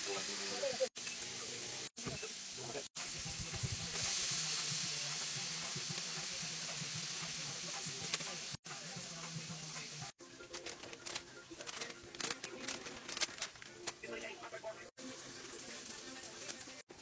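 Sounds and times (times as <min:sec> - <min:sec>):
pork chops sizzling in oil: 0:00.0 - 0:10.2, 0:14.9 - 0:17.0.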